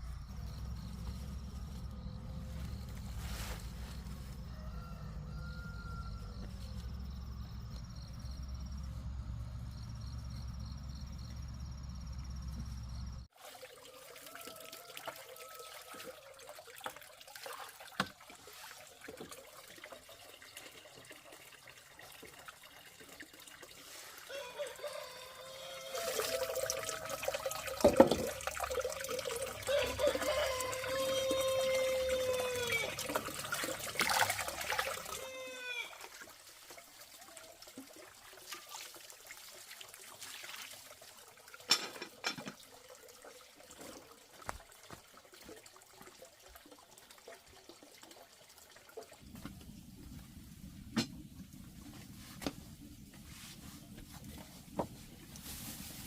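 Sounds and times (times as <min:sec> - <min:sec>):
low steady rumble: 0:00.0 - 0:04.5, 0:05.1 - 0:13.3, 0:49.2 - 0:56.0
water trickling and gurgling: 0:12.8 - 0:56.0.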